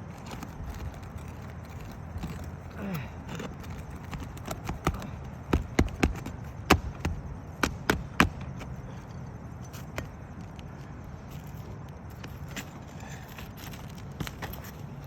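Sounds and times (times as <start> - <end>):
steady low background noise: 0.0 - 15.0
sharp knocks on shingle roof: 3.3 - 8.8.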